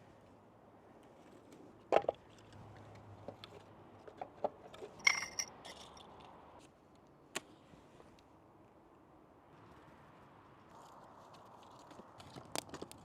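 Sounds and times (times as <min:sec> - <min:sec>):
cookware clicks and knocks: 0:05.0 - 0:05.5
ringing clink: 0:05.0 - 0:05.5.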